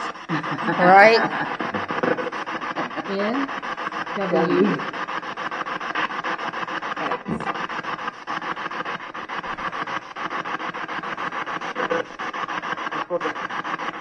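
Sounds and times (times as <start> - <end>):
pulsing radio static: 0.0 - 3.4, 4.1 - 5.0, 6.9 - 7.6, 11.6 - 12.2.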